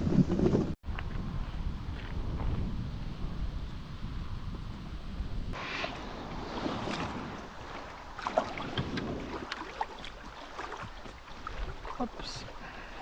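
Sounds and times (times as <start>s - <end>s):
wind rumbling on microphone: 0.0s - 13.0s
water splashing: 5.6s - 13.0s.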